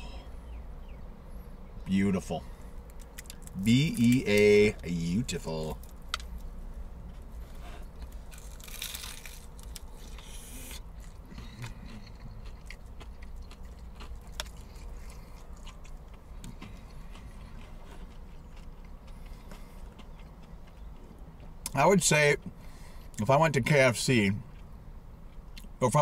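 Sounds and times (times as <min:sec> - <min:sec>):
steady low hum: 0:00.0 - 0:26.0
crunchy chewing of fried chicken: 0:02.5 - 0:21.8.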